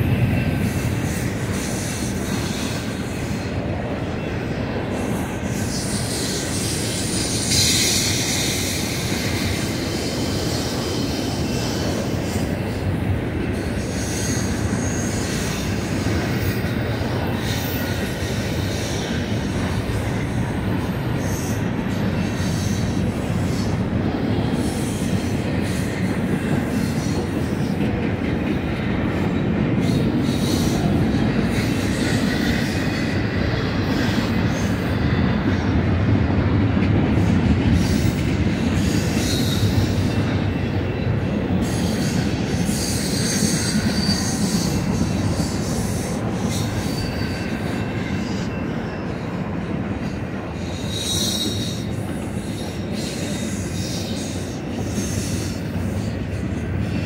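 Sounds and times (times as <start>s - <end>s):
train wheels rumbling on rail: 0.0s - 57.0s
high wheel squeals: 41.6s - 49.2s, 50.6s - 55.5s.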